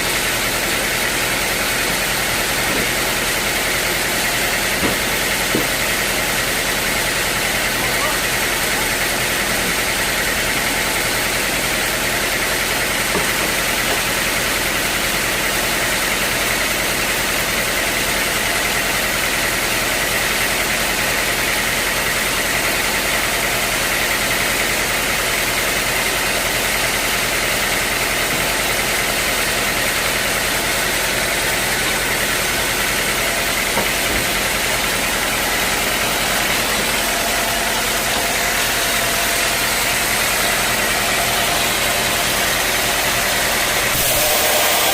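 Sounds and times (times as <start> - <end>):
sawmill machinery running: 0.0 - 44.9.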